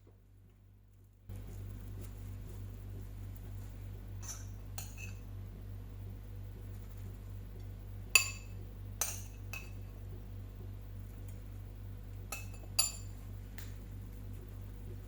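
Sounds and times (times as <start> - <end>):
steady low hum: 0.0 - 15.0
tableware clinking: 4.2 - 5.2, 8.2 - 9.8, 12.3 - 13.2.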